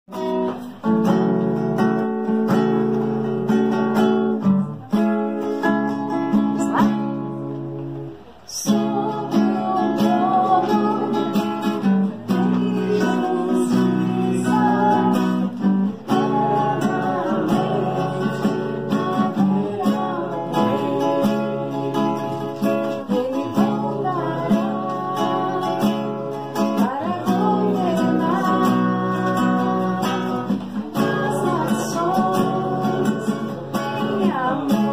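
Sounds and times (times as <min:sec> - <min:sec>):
acoustic guitar strumming: 0:00.1 - 0:34.9
person singing: 0:08.5 - 0:34.9.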